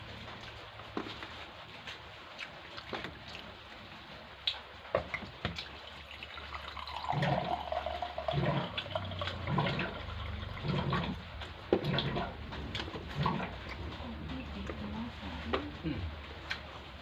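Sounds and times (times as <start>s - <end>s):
wet chewing: 0.2s - 6.1s, 9.2s - 16.8s.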